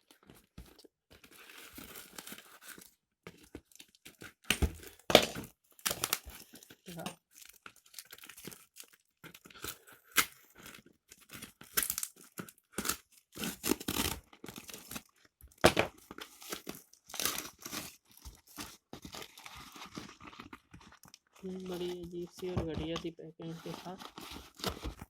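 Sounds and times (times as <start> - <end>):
packaging torn and crumpled: 0.0 - 22.5, 23.5 - 25.0.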